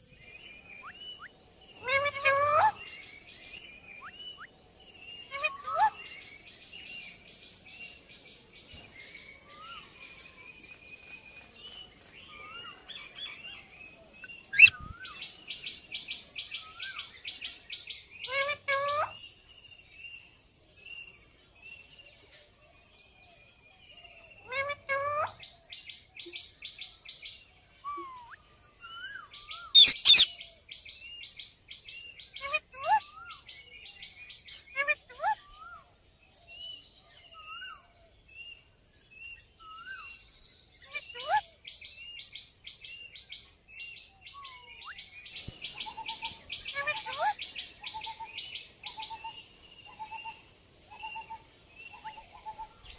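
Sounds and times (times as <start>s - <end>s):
parrot chattering and squawking: 1.8s - 2.8s, 29.7s - 30.3s, 46.7s - 47.4s
parrot shrill screeches: 29.7s - 30.3s.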